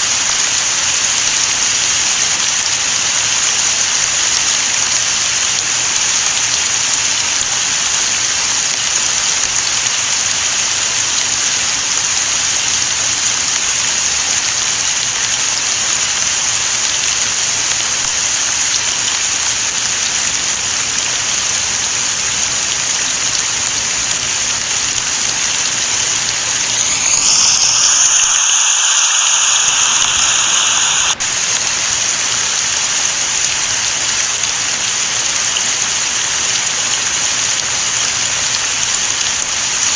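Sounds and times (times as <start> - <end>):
rain falling: 14.2 - 39.9.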